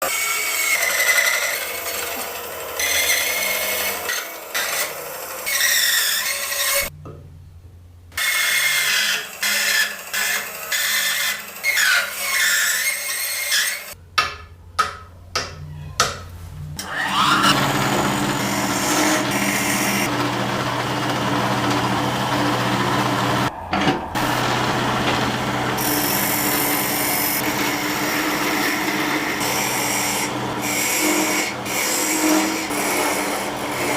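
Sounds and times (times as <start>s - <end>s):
wood rasping and rubbing: 16.8s - 23.6s, 24.2s - 33.9s
power tool whining: 16.8s - 33.9s.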